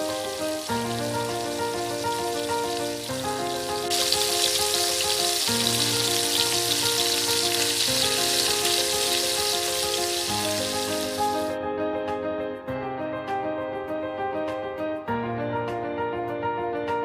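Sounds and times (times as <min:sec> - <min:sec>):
food sizzling in a pan: 0:00.0 - 0:11.5.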